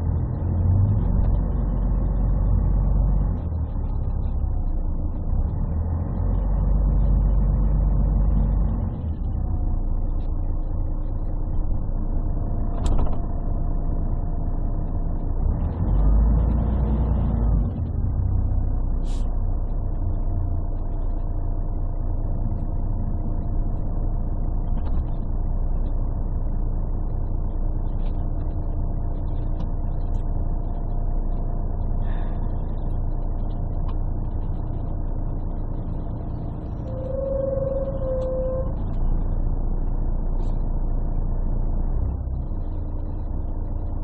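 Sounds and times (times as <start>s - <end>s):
bus diesel engine running: 0.0s - 44.0s
low rumble: 0.0s - 44.0s
steady higher tone: 36.5s - 40.0s.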